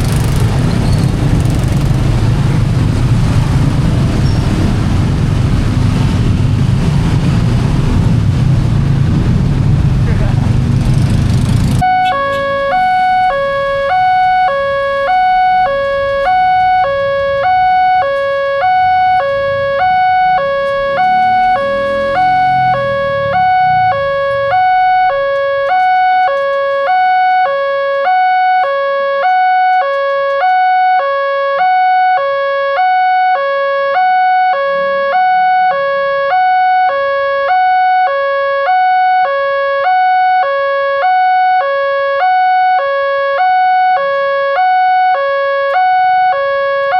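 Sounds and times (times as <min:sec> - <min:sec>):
crossing alarm two-tone signal: 0:11.8 - 0:46.9.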